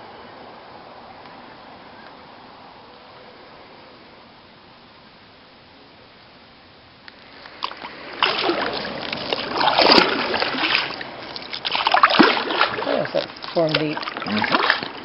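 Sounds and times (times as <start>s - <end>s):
paddle strokes splashing water: 7.1s - 15.0s.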